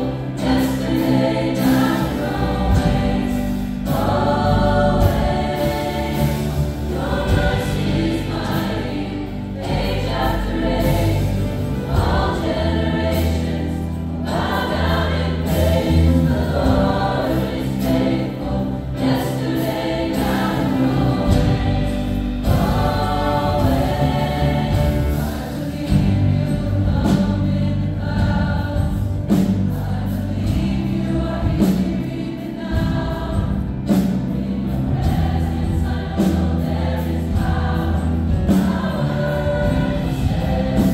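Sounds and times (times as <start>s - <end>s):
choir singing gospel with band: 0.0s - 40.9s
steady bass line: 0.0s - 40.9s.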